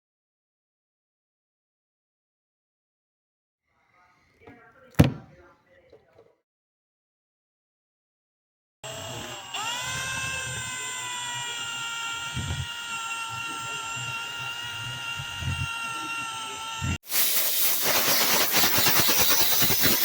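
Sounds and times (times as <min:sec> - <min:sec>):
power tool whining: 0:08.8 - 0:20.0.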